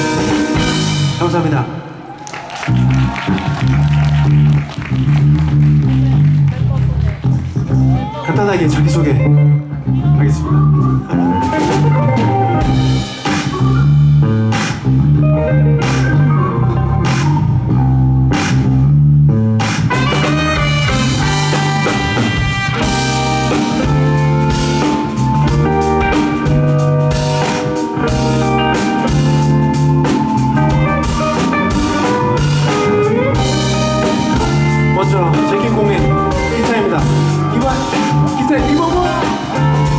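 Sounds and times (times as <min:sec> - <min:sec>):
drum kit: 0:00.0 - 0:01.6, 0:11.3 - 0:15.2, 0:15.8 - 0:18.9, 0:19.5 - 0:39.9
low bass line: 0:00.0 - 0:01.6, 0:02.7 - 0:39.9
guitar: 0:00.0 - 0:02.0, 0:02.6 - 0:39.9.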